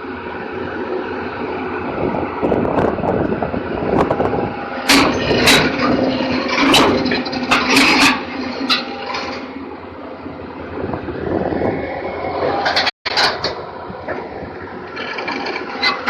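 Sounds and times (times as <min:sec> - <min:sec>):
excavator diesel engine running: 0:00.0 - 0:16.0
metallic clanks and squeals: 0:04.6 - 0:09.6, 0:11.8 - 0:14.3, 0:14.9 - 0:16.0.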